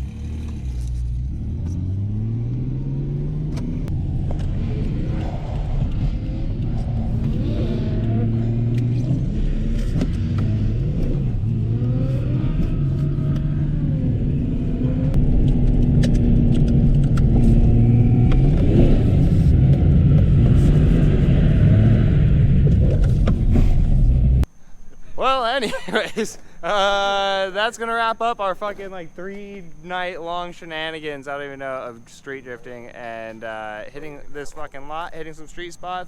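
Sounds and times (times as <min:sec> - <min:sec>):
car engine revving: 0:00.0 - 0:24.5
low rumble: 0:00.0 - 0:24.5.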